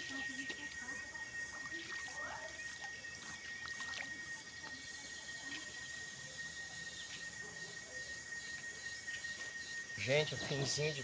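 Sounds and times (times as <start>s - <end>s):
faint trickling water: 0.0s - 8.0s
high-pitched insect chorus: 0.0s - 11.0s.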